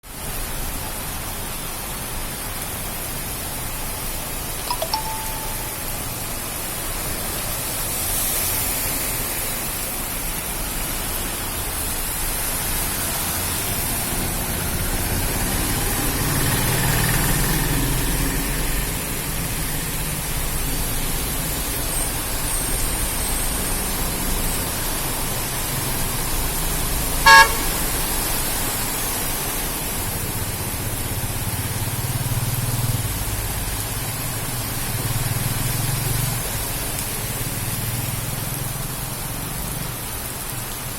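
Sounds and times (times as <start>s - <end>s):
heavy rain hissing: 0.1s - 4.6s, 5.9s - 40.9s
vehicles passing on wet road: 6.0s - 40.9s
car horn honk: 27.2s - 27.8s.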